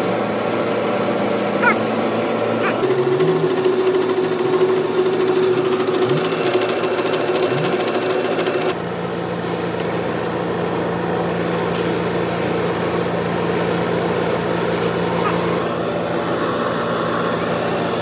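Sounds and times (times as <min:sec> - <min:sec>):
mechanical buzzing: 0:01.6 - 0:08.8.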